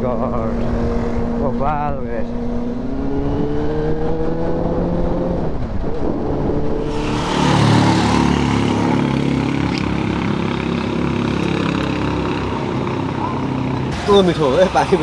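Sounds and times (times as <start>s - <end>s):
motorcycle engine accelerating: 0.0s - 15.0s
loud rushing noise: 6.8s - 15.0s.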